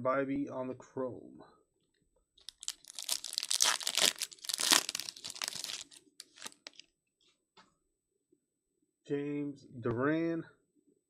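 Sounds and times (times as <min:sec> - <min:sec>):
foil wrapper tearing and crinkling: 0:02.4 - 0:06.8.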